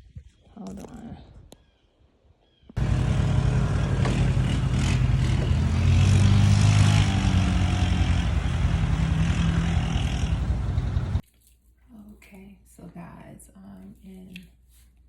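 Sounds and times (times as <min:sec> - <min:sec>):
loud engine-like drone: 0:02.8 - 0:11.2.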